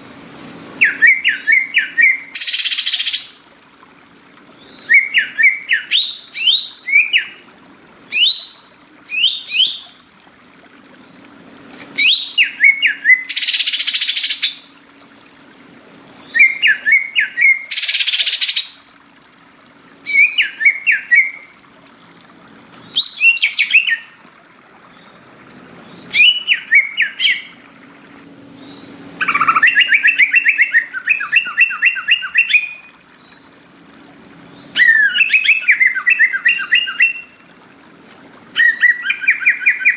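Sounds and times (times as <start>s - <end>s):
bird chirping rapidly: 0.8s - 3.4s, 8.1s - 10.0s, 16.2s - 18.8s, 20.1s - 21.4s, 22.9s - 24.1s, 25.8s - 27.6s, 28.6s - 33.4s, 34.5s - 37.4s
fast bird trill: 29.2s - 32.9s.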